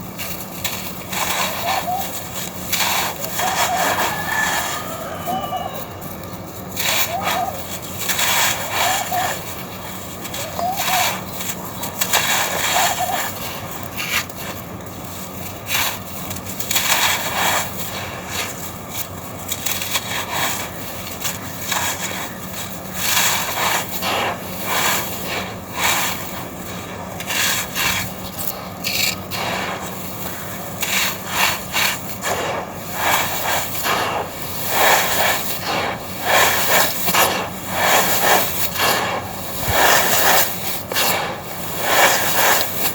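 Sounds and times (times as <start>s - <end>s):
crushing gritty chunks: 0.0s - 42.9s.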